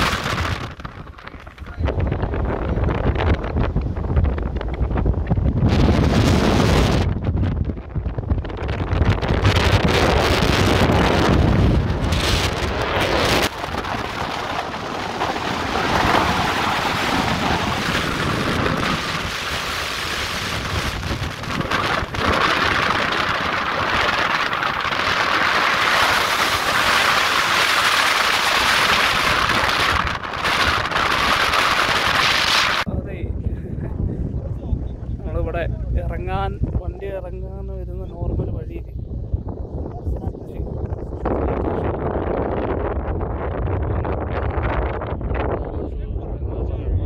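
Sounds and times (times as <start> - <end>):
off-road vehicle driving on sand: 0.0 - 32.9
wind buffeting microphone: 0.0 - 47.0.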